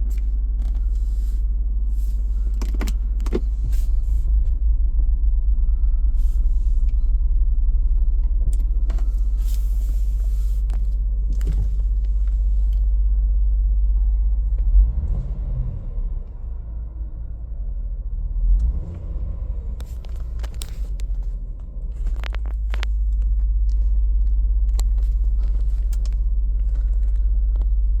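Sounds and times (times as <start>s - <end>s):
car engine idling: 0.0s - 28.0s
sharp clicks and knocks: 2.6s - 3.5s.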